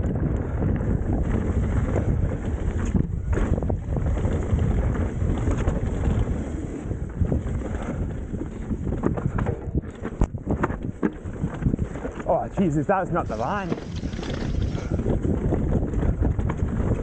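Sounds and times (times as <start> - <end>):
bike rumbling and rattling: 0.0 - 17.0
wind buffeting microphone: 0.0 - 17.0.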